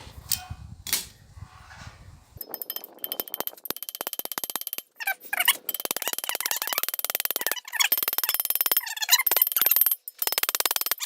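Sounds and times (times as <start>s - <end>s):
hammer tapping metal: 2.4s - 11.0s.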